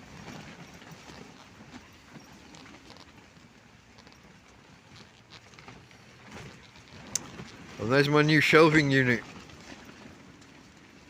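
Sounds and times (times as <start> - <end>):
tent fabric flapping: 0.0 - 11.0
wind buffeting a tent: 0.0 - 11.0.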